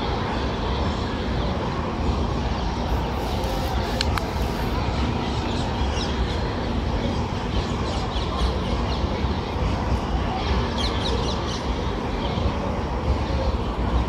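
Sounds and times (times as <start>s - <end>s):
railway station background rumble: 0.0s - 14.0s
birds chirping: 2.8s - 6.4s.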